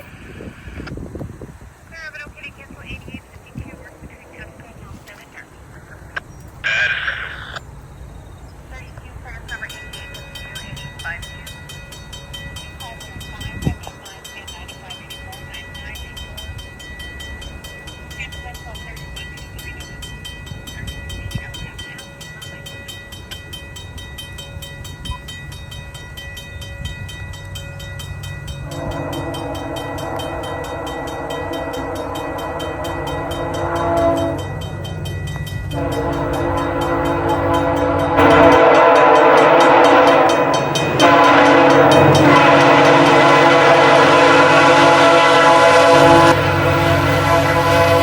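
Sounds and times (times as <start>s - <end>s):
low rumble of approaching train: 0.0s - 48.0s
crossing bell ringing: 1.5s - 48.0s
train air horn blasts: 28.6s - 48.0s.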